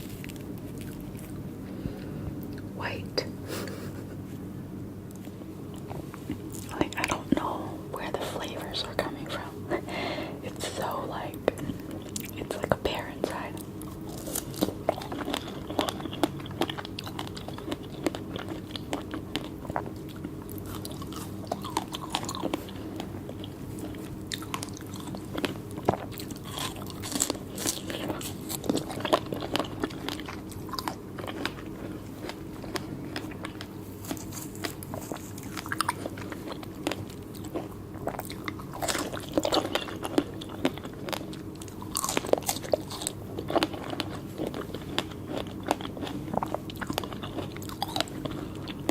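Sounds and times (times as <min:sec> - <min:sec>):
crunchy fruit bites: 0:00.0 - 0:01.6, 0:10.8 - 0:48.9
steady low hum: 0:00.0 - 0:48.9.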